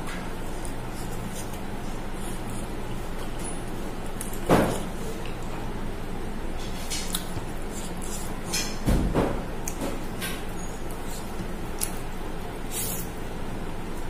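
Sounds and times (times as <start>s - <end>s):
person chewing with wet mouth clicks: 11.3s - 12.1s.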